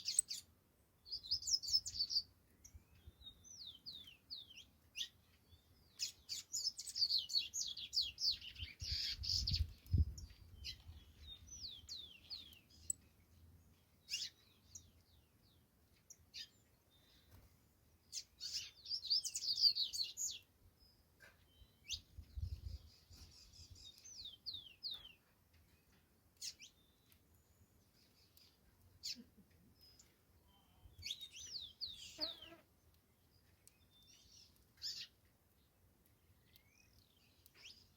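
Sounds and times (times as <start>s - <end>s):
finch chirping: 0.0s - 0.5s, 1.1s - 13.0s, 14.0s - 15.0s, 18.1s - 20.5s, 21.2s - 25.3s, 26.4s - 27.2s, 33.7s - 35.2s.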